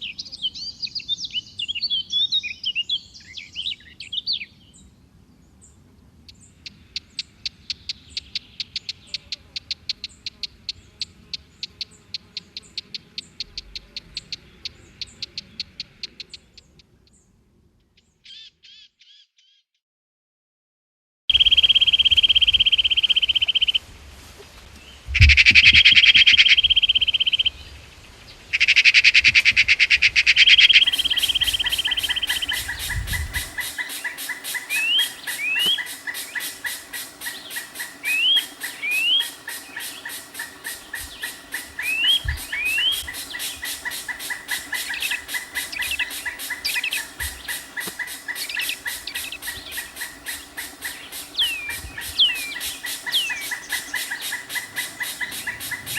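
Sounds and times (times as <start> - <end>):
birds buzzy trilling: 30.2 - 55.9
short rising bird chirps: 30.4 - 55.9
fast steady ticking: 30.8 - 55.9.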